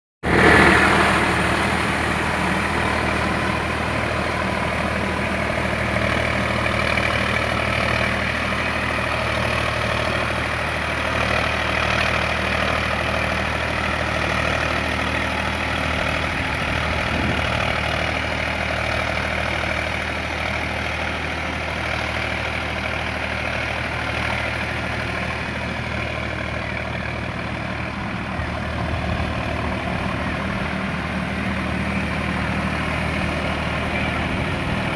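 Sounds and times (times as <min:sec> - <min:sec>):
tractor diesel engine running: 0:00.2 - 0:34.9.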